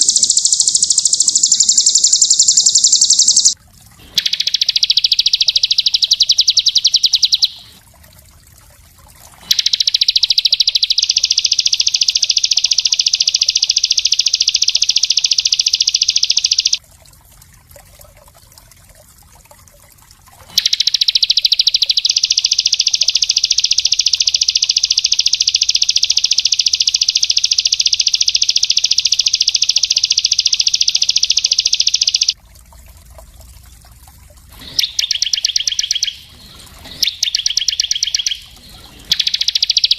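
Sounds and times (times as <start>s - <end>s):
songbird rapid high trills: 0.0s - 7.8s, 9.4s - 16.8s, 20.6s - 32.4s, 34.6s - 39.9s.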